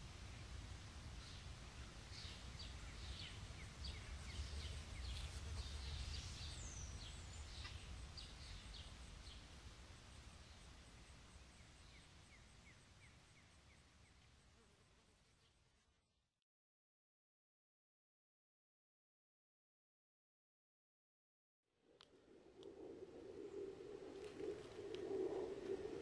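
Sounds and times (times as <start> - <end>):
small birds chirping: 1.2 - 14.6.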